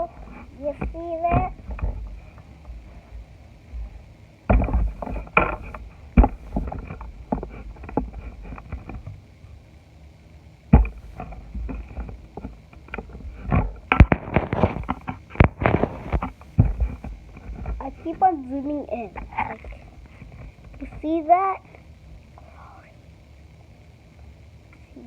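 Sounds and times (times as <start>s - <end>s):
soft squelching thumps: 0.0s - 9.3s, 10.7s - 18.3s.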